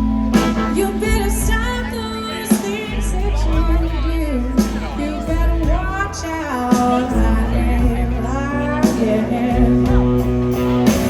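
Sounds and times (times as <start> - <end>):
sliding lead guitar lines: 0.0 - 5.3
blues rock band playing: 0.0 - 11.0.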